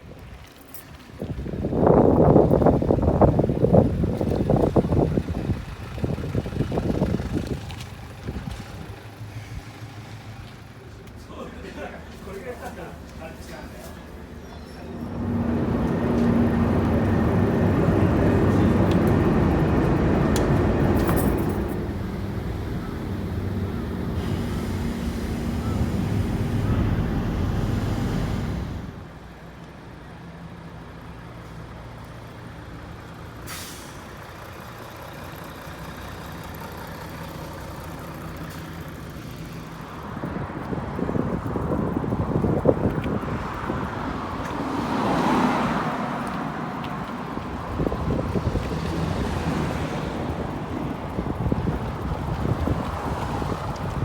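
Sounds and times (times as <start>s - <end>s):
large engine running: 2.3s - 12.2s, 12.8s - 29.4s, 46.2s - 54.0s.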